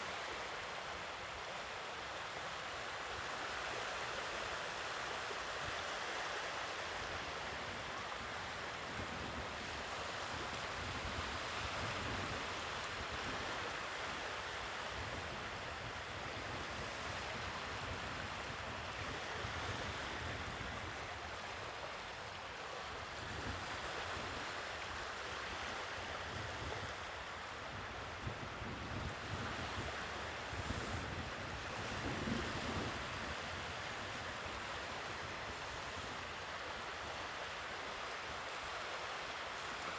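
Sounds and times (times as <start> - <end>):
sea waves washing ashore: 0.0 - 39.9
wind rumbling on microphone: 26.0 - 36.4.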